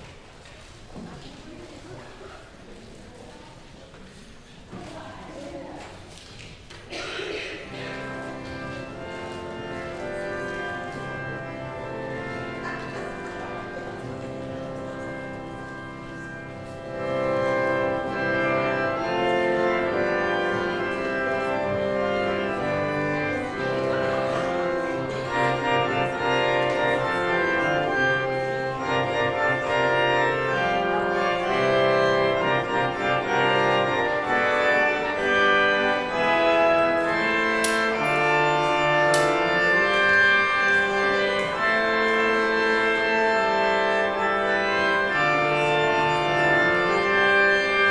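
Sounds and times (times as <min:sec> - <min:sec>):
church organ playing chords: 0:07.0 - 0:47.9.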